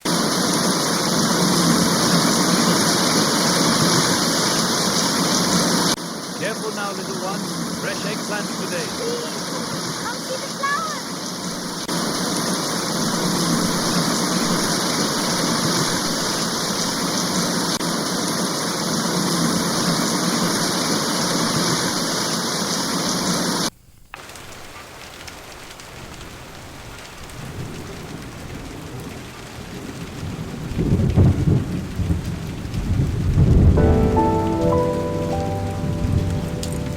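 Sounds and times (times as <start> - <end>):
heavy rain: 0.0 - 36.9
light rain: 0.0 - 36.9
low rumbling thunder: 27.3 - 34.2.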